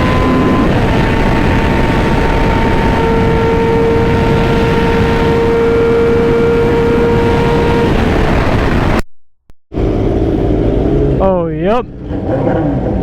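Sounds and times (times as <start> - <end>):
motorcycle engine: 0.0 - 9.0, 9.7 - 13.0
wind rush: 0.0 - 9.0.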